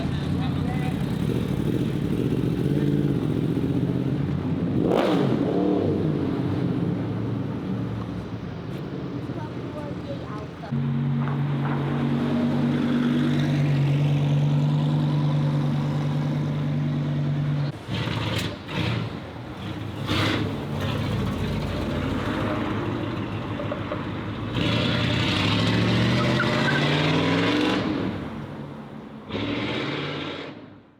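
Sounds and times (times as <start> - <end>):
engine revving: 0.0 - 6.8, 10.7 - 22.8, 24.4 - 28.4, 29.3 - 30.8.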